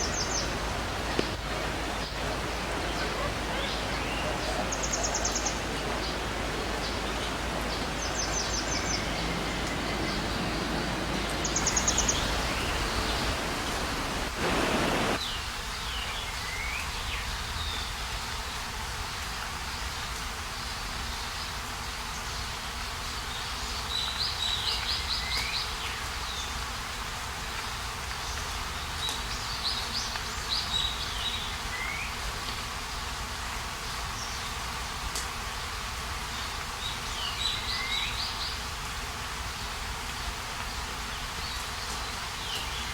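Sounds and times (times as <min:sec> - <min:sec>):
stream rushing over rocks: 0:00.0 - 0:15.3
high chirping calls: 0:02.8 - 0:15.2.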